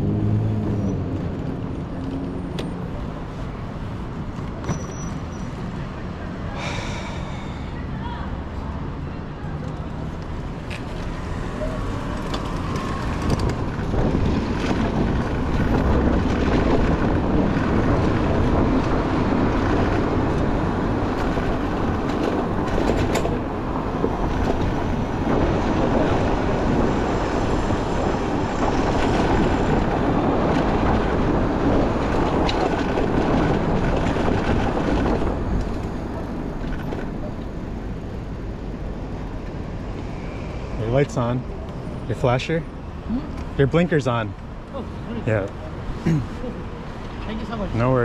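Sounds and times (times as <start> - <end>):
city traffic rumble: 0.0 - 48.0
wind on microphone: 10.2 - 40.7.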